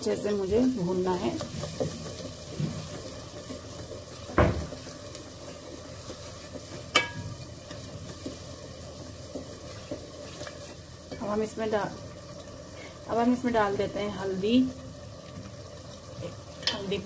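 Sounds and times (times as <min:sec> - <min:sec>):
paste sizzling in hot oil: 0:00.0 - 0:17.0
spatula knocking against pot: 0:06.9 - 0:07.3.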